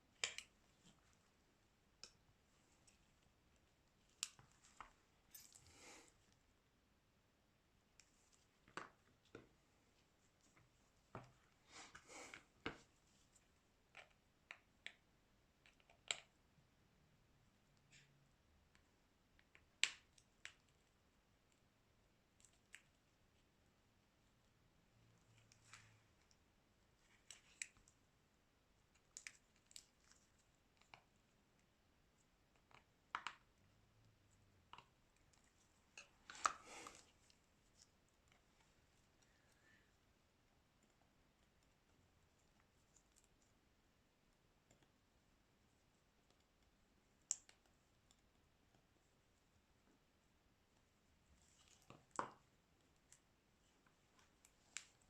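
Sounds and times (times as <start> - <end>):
clicks and taps of small tools: 0.2 - 1.0, 32.6 - 33.5.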